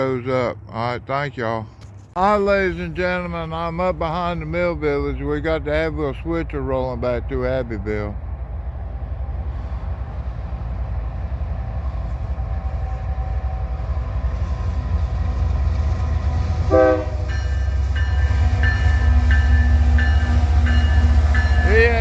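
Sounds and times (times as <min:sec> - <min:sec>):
locomotive engine rumble: 0:00.0 - 0:22.0
train horn toot: 0:15.9 - 0:22.0
bell ringing: 0:17.3 - 0:22.0.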